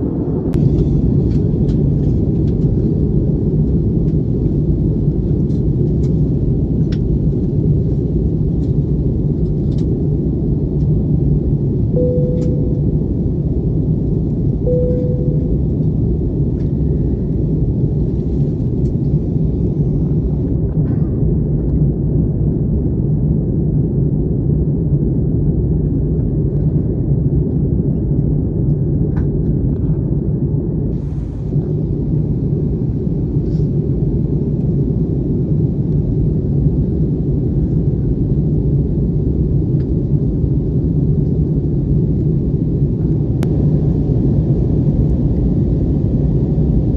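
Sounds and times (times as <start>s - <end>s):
airliner cabin engine rumble: 0.0s - 46.9s
short cabin tone: 12.0s - 13.3s, 14.6s - 16.0s.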